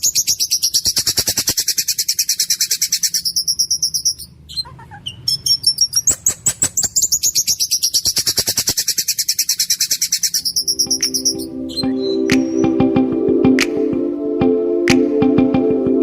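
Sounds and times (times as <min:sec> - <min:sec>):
songbird rapid harsh trill: 0:00.0 - 0:12.6
soft music: 0:10.7 - 0:16.0.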